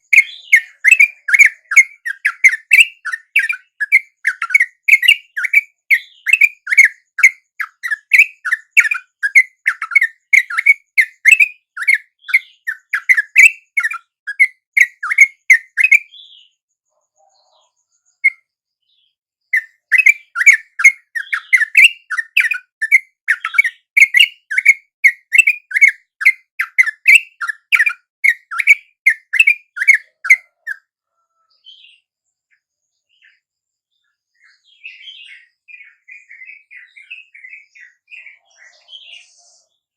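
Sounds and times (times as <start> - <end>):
bird chattering harsh notes: 19.6 - 30.8.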